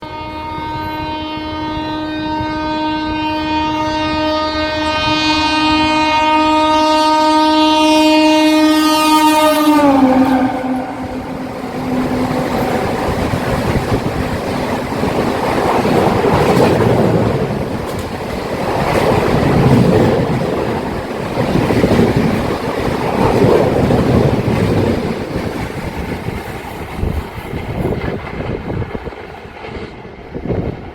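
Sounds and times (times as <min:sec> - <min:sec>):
locomotive horn: 0:00.0 - 0:13.8
train coaches rushing and clattering: 0:07.9 - 0:30.9.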